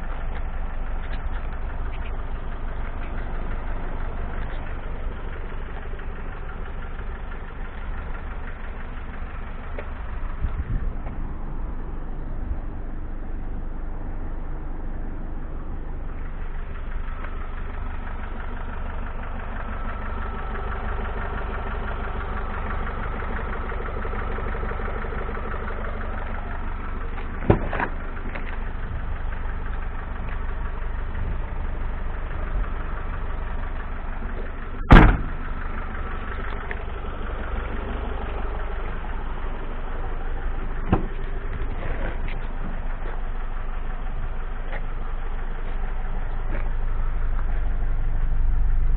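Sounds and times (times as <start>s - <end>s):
diesel engine idling: 0.0s - 48.9s
loud thump: 34.9s - 35.4s, 40.9s - 41.2s.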